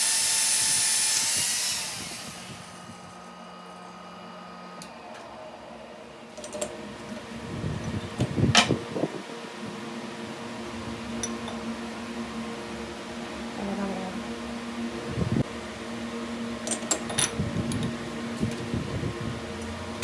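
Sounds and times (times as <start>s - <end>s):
power tool whining: 0.0s - 3.9s.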